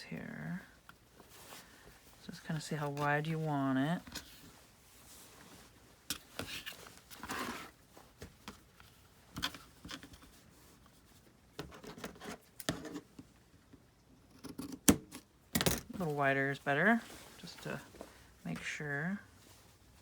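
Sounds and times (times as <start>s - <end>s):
fabric rustling: 0.4s - 11.3s, 15.9s - 20.0s.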